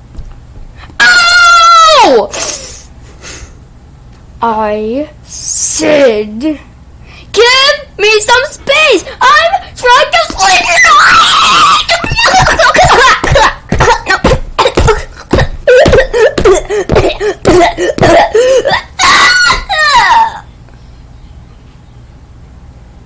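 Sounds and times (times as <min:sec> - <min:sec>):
person coughing: 0:12.5 - 0:18.9.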